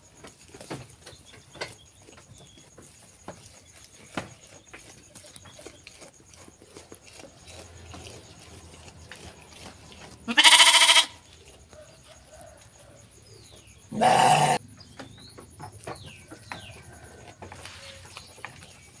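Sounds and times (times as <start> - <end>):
sheep bleating: 10.2 - 11.2, 13.9 - 14.6.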